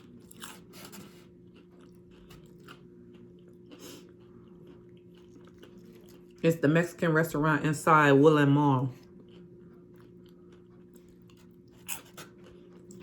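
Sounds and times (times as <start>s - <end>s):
chewing crunchy chips: 0.0s - 6.5s, 8.9s - 13.0s
low steady hum: 0.0s - 13.0s.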